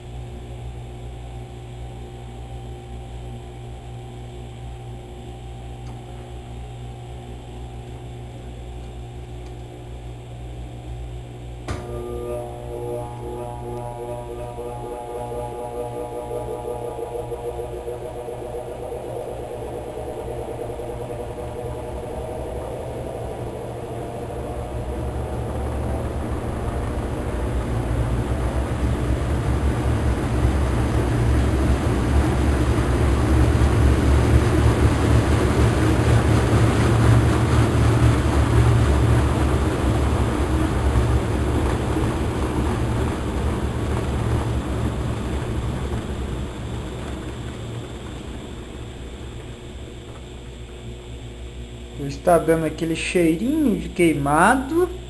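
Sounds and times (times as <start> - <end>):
washing machine spinning: 11.2 - 55.0.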